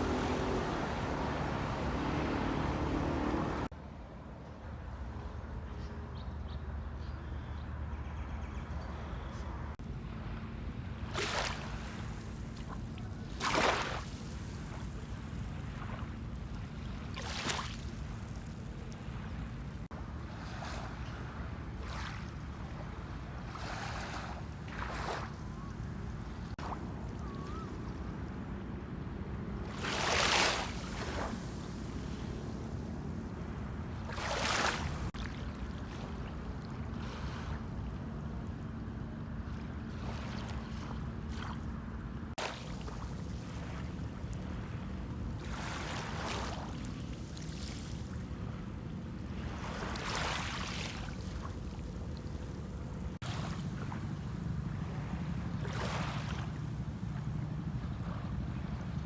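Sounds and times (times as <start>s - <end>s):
low motor drone: 0.0s - 3.7s
wave washing up beach: 0.0s - 3.7s, 29.7s - 32.8s
waves breaking on beach: 0.0s - 3.7s, 11.0s - 27.7s, 29.6s - 38.2s, 39.5s - 59.0s.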